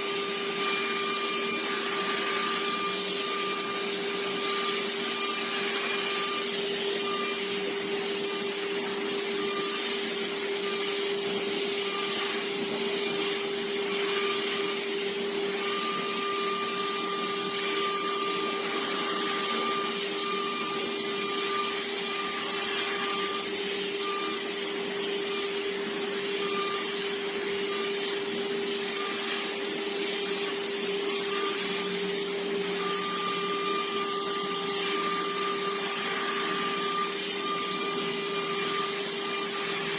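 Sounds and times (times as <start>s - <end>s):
drill spindle whine: 0.0s - 39.9s
high machine tone: 15.5s - 24.6s, 32.8s - 39.9s.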